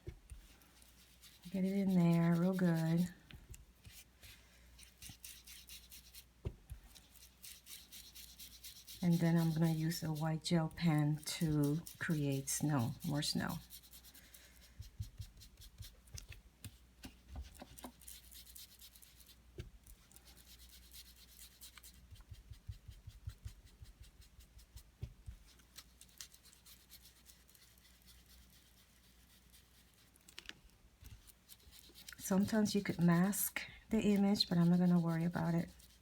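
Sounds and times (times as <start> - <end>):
blending tool scratching on card: 6.9 - 14.1, 31.2 - 36.0.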